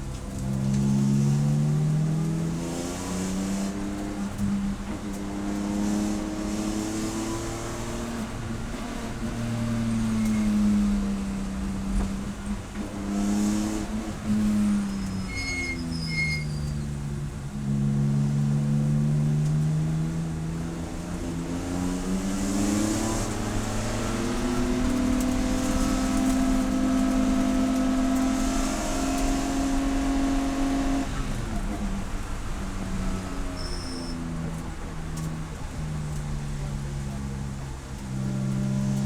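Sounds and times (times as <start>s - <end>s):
race car engine accelerating: 0.0s - 39.0s
short high beeps: 33.6s - 34.2s.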